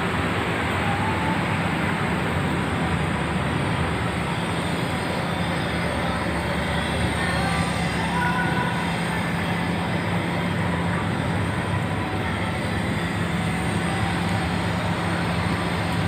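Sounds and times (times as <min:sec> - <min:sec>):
ferry engines droning: 0:00.0 - 0:16.0
rushing water noise: 0:00.0 - 0:16.0.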